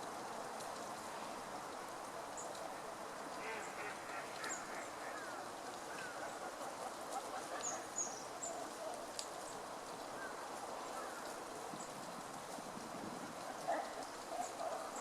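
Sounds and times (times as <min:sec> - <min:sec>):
outdoor background noise: 0:00.0 - 0:15.0
high bird calls: 0:03.4 - 0:08.8.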